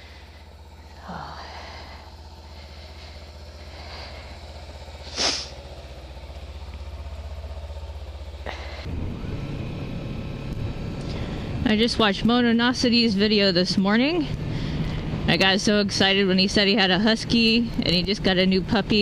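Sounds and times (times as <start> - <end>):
motorcycle engine drone: 0.0 - 19.0
loud hiss: 5.0 - 5.6.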